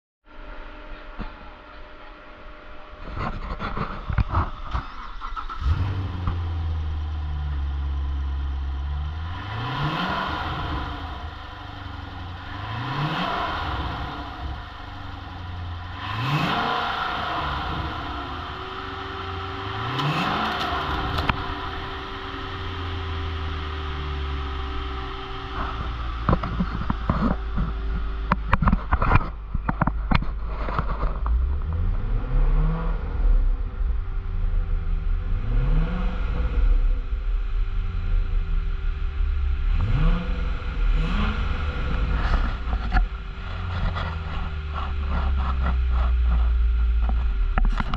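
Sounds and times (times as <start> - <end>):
car engine idling and revving: 0.3 - 47.9.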